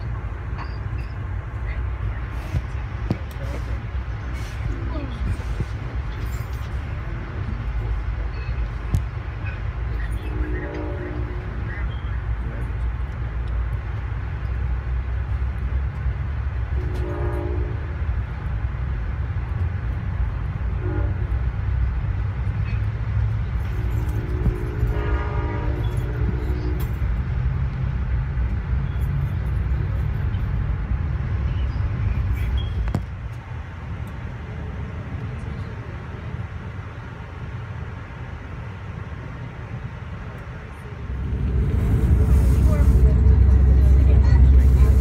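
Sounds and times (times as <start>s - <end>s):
passenger train rumbling: 0.0s - 45.0s
locomotive horn blasts: 10.2s - 11.7s, 16.8s - 18.0s, 20.7s - 21.4s, 23.8s - 27.0s.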